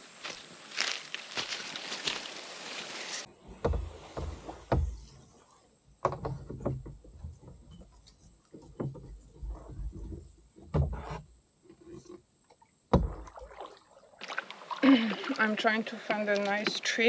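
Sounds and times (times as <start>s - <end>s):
rustling hiss: 0.0s - 5.7s
water splashing from wading: 12.9s - 17.0s.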